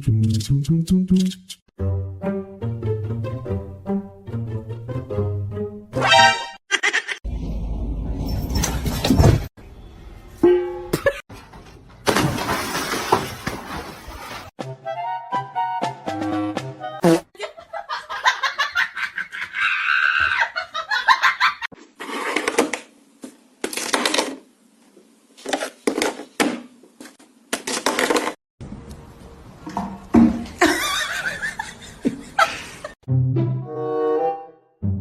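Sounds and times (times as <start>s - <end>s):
people laughing: 30.6s - 33.0s.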